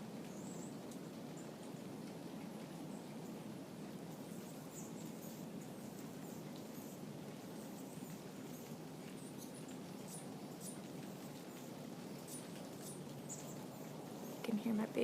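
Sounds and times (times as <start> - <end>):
hummingbird chirps: 4.2 - 15.0.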